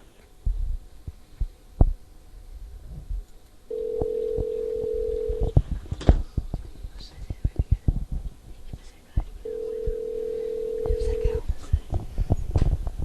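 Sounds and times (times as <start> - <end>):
telephone line tone: 3.7 - 5.6, 9.4 - 11.4.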